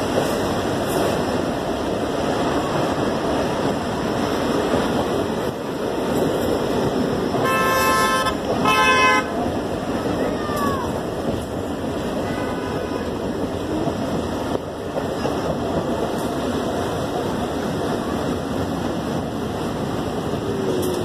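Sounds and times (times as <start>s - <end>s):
train wheels rumbling on track: 0.0s - 21.0s
train horn blasts: 7.4s - 9.4s, 12.3s - 13.2s.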